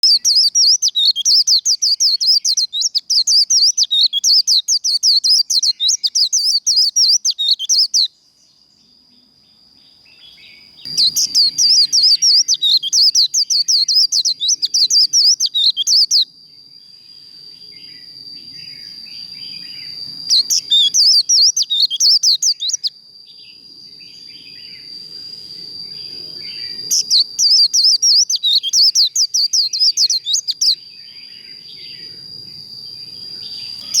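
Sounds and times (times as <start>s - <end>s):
bird twittering song: 0.0s - 34.0s
thin high whine: 10.2s - 27.9s.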